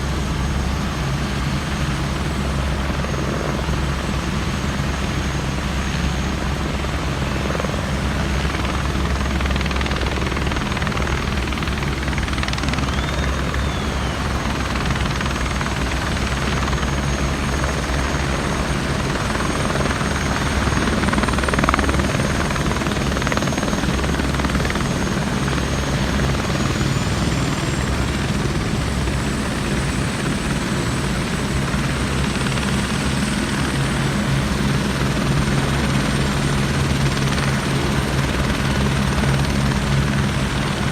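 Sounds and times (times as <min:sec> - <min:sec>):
helicopter rotor drone: 0:00.0 - 0:40.9
faint high whine: 0:12.4 - 0:18.6.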